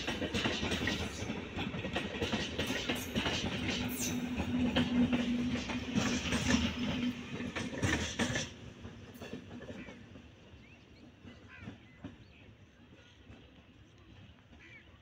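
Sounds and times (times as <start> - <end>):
train wheels clattering: 0.0 - 13.7
train rushing noise: 0.0 - 14.6.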